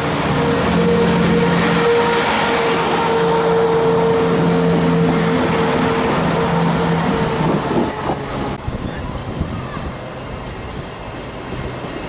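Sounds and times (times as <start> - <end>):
train droning close by: 0.0 - 12.0.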